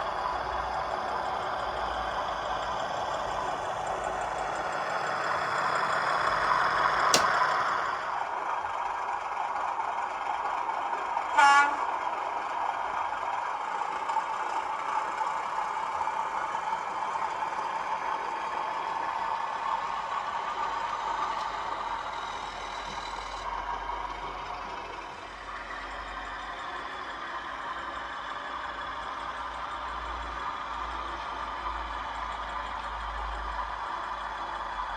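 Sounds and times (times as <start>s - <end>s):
train horn toot: 11.3s - 12.0s.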